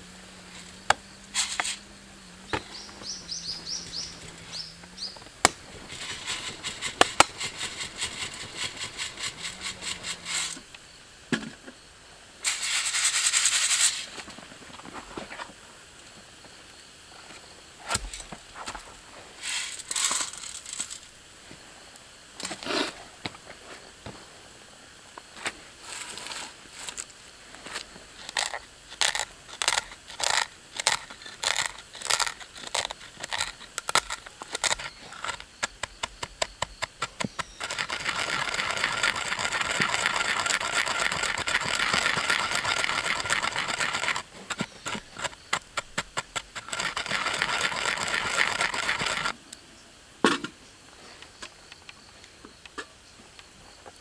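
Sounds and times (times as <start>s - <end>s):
coffee beans being ground: 0.0s - 10.9s, 12.4s - 14.2s, 19.4s - 21.1s, 28.1s - 49.4s.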